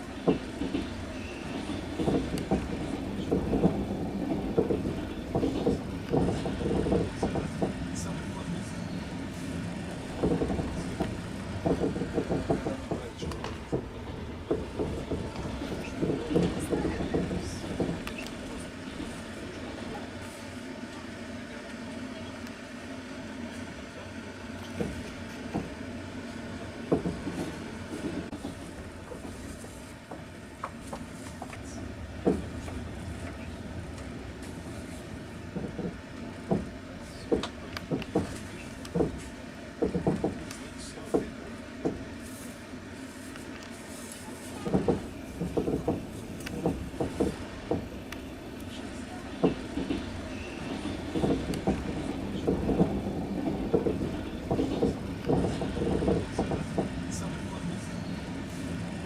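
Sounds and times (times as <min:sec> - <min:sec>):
train rumbling: 0:00.0 - 0:59.0
wheels clacking and knocking: 0:00.2 - 0:08.5, 0:09.3 - 0:19.2, 0:26.8 - 0:42.0, 0:44.5 - 0:57.7.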